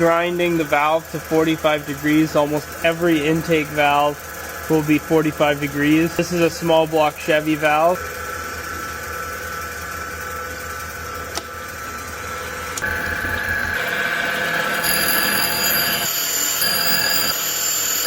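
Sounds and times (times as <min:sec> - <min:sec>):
high whine: 0:00.0 - 0:18.0
grinding wheel grinding metal: 0:12.8 - 0:18.0.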